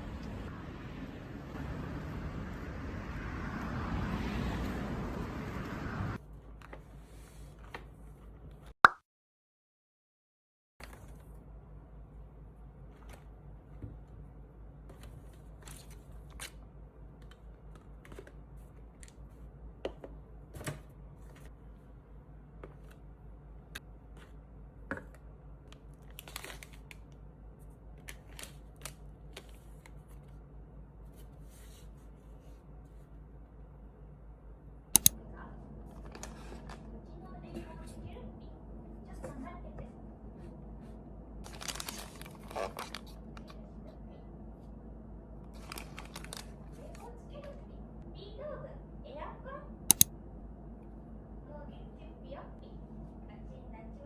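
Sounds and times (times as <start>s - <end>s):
steady low hum: 0.0s - 6.2s, 33.4s - 54.0s
sharp clicks: 35.0s - 35.2s.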